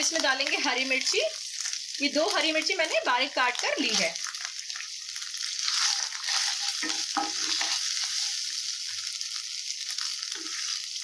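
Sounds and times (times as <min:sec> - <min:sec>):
chillies sizzling in hot oil: 0:00.0 - 0:11.0
wooden spatula scraping a pan: 0:05.7 - 0:08.4.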